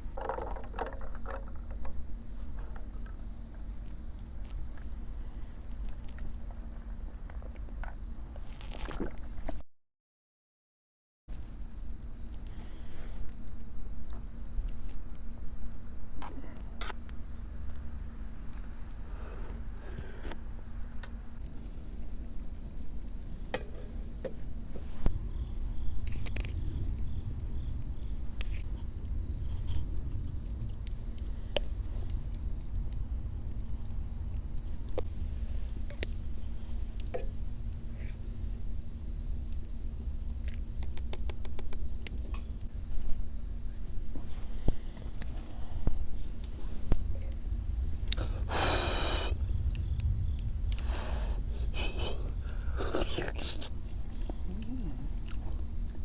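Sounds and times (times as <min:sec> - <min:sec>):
crickets trilling: 0:00.0 - 0:09.6, 0:11.3 - 0:56.0.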